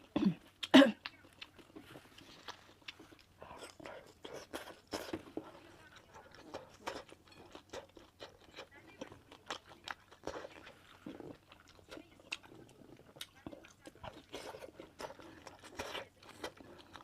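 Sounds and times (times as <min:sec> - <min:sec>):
person chewing and biting food: 0:06.3 - 0:17.0.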